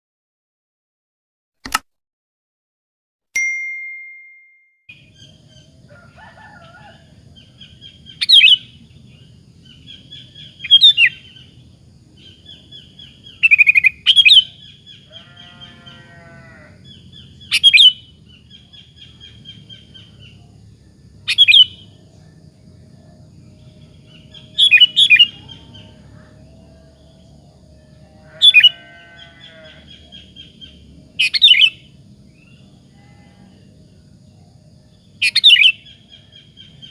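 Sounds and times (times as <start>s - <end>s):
low steady hum: 4.9s - 36.9s
bird singing sharp calls: 6.6s - 16.2s, 16.8s - 20.4s, 21.3s - 22.4s, 23.6s - 27.2s, 28.2s - 32.8s, 35.2s - 36.9s.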